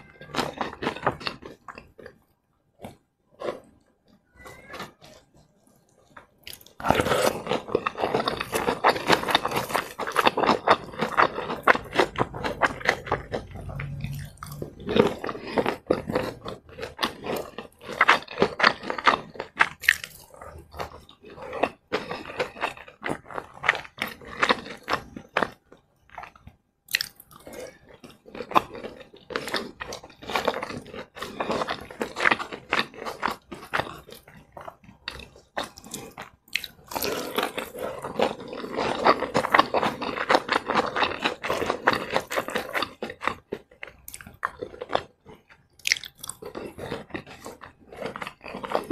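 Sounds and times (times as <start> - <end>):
chewing crispy fried food: 0.0 - 48.9.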